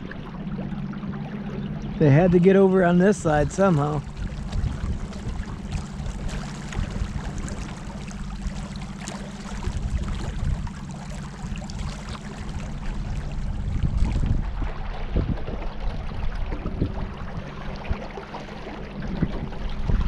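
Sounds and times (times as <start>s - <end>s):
boat motor humming: 0.0s - 20.0s
water splashing: 0.0s - 20.0s
wind noise: 3.2s - 8.7s, 9.5s - 18.1s, 19.0s - 20.0s.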